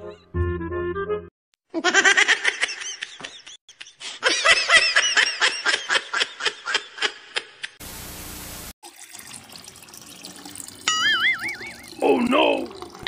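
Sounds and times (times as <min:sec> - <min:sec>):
high-pitched laughter: 0:01.7 - 0:07.7.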